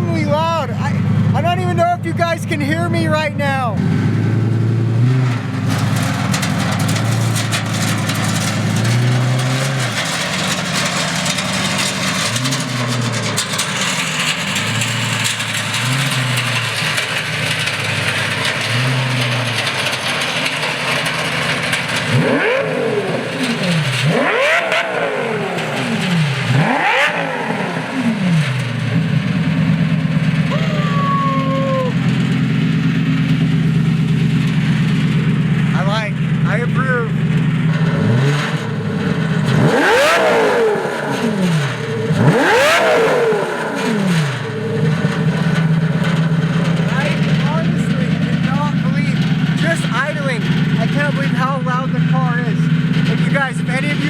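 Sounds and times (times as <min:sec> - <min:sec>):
sports car engine revving: 0:00.0 - 0:54.0.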